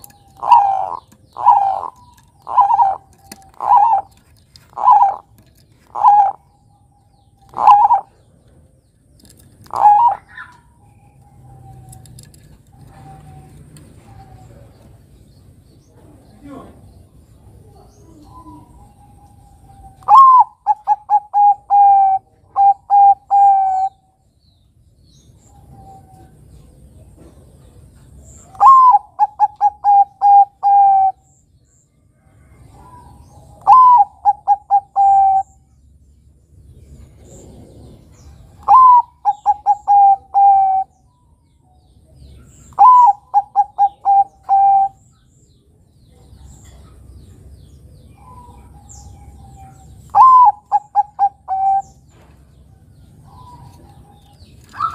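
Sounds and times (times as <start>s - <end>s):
dove cooing: 0.0s - 8.6s, 9.6s - 15.0s, 17.6s - 24.0s, 28.4s - 31.3s, 32.4s - 35.7s, 37.0s - 41.1s, 42.5s - 45.1s, 48.1s - 52.2s.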